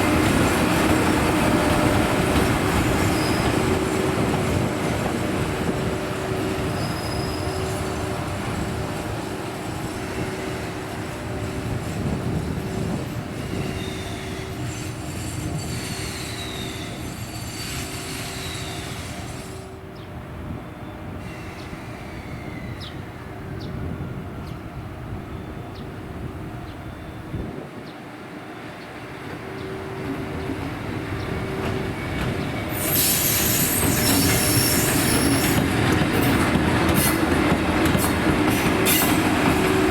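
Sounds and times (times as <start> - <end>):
train rolling over rails: 0.0 - 19.8, 28.6 - 39.9
train wheels squealing: 2.4 - 4.7, 6.4 - 19.8, 20.6 - 24.5, 30.4 - 39.9.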